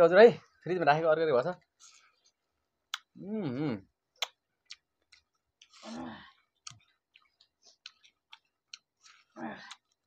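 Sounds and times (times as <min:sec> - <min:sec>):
person humming: 0:03.2 - 0:03.8
people chewing with lip smacks: 0:04.2 - 0:10.0.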